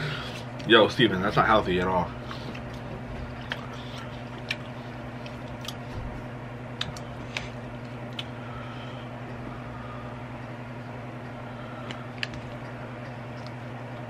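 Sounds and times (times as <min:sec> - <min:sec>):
steady low hum: 0:00.0 - 0:14.0
chewing fries with wet clicks: 0:02.3 - 0:05.8, 0:06.7 - 0:08.4, 0:11.9 - 0:14.0.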